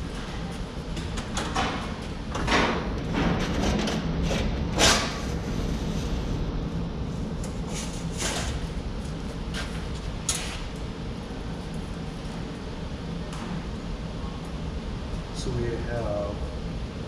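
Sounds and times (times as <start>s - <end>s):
low shop hum: 0.0s - 17.0s.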